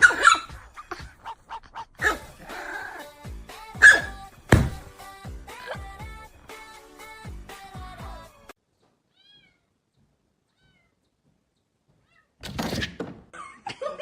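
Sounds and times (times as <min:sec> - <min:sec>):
loud thump: 0:04.5 - 0:04.9
cat meowing softly: 0:09.1 - 0:09.8, 0:10.5 - 0:11.0, 0:12.0 - 0:12.4.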